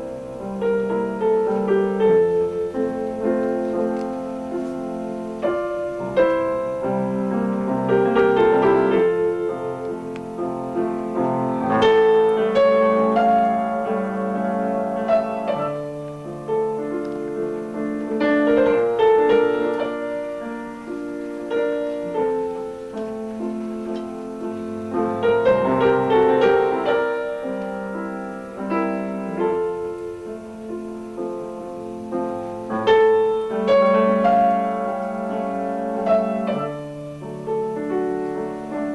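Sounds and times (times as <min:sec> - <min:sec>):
solo piano classical piece: 0:00.0 - 0:38.9.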